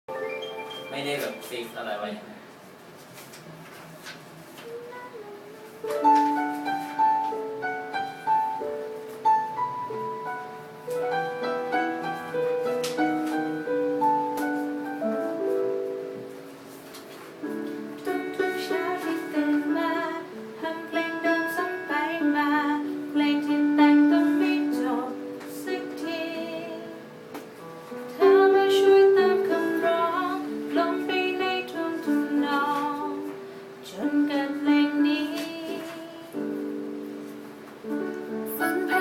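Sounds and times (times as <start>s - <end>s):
person singing: 4.6s - 6.9s, 18.0s - 27.1s, 28.2s - 36.7s, 38.0s - 39.0s.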